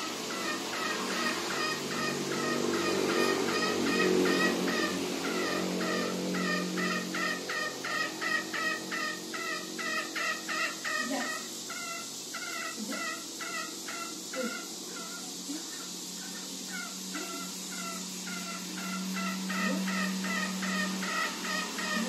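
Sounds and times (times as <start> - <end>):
junglefowl cackling call: 0.0 - 22.0.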